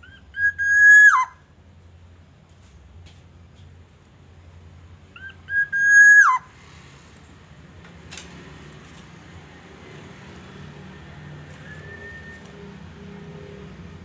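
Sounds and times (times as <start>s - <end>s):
bird whistled call: 0.0s - 1.4s, 5.2s - 6.4s, 11.5s - 12.6s
faint short whistle: 11.5s - 12.6s.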